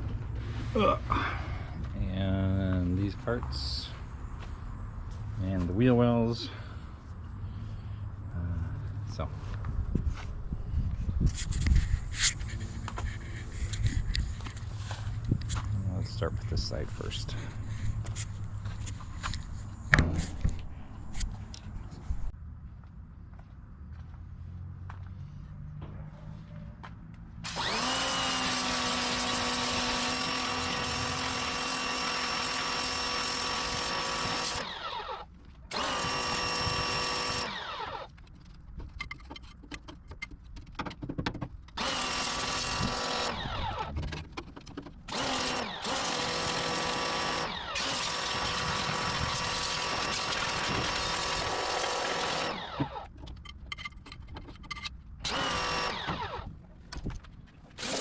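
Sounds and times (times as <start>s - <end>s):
pressure washer motor whining: 27.5s - 38.1s, 45.1s - 53.1s, 55.2s - 56.5s, 57.8s - 58.0s.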